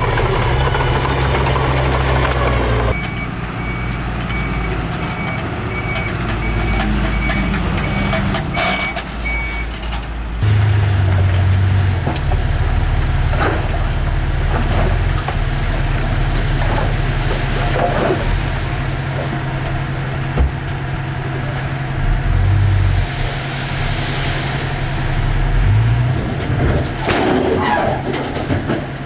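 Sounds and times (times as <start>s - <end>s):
diesel construction machinery running: 0.0s - 29.0s
reversing alarm beeping: 2.9s - 9.8s.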